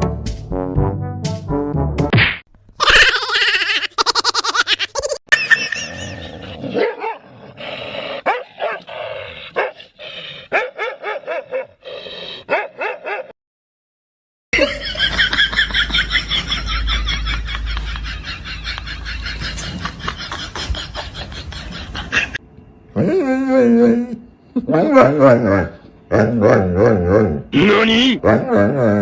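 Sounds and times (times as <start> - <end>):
dog barking and yipping: 6.8 - 7.2, 8.3 - 8.8, 10.5 - 11.8, 12.5 - 13.3.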